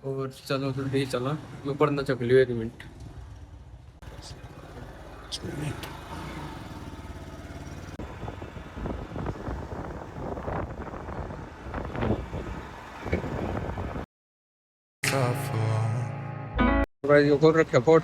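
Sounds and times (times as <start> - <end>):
vehicle engine running: 3.1 - 9.6.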